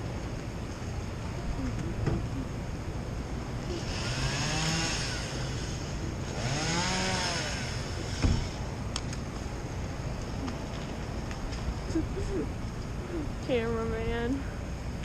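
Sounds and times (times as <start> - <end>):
steady low rumble: 0.0 - 15.0
chainsaw revving: 3.6 - 8.6
short thump: 8.2 - 8.5.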